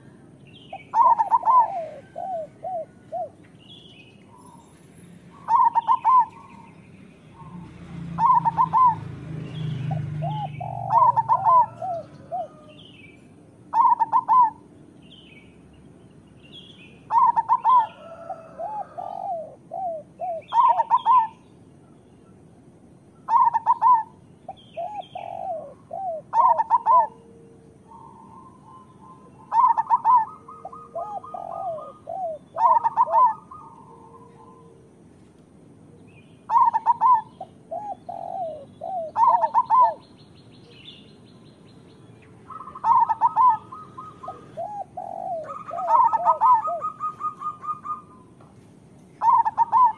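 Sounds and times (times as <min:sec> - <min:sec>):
dove cooing: 0:00.0 - 0:03.4, 0:05.3 - 0:06.7, 0:07.3 - 0:14.7, 0:17.1 - 0:21.4, 0:23.3 - 0:35.0, 0:36.5 - 0:40.1, 0:42.4 - 0:48.4, 0:49.2 - 0:49.9.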